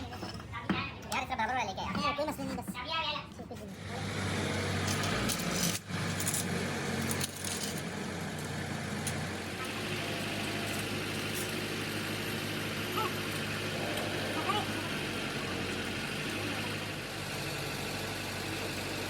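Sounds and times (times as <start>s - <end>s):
low engine-like hum: 3.8s - 19.0s.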